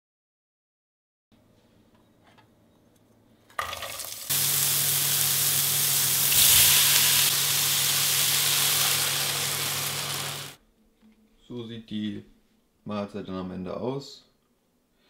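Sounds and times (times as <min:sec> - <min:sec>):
food sizzling in a frying pan: 0:03.6 - 0:10.6.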